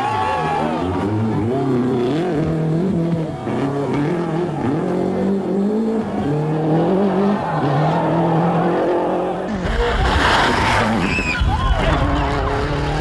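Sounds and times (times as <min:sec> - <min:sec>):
rally car engine revving: 0:00.2 - 0:13.0.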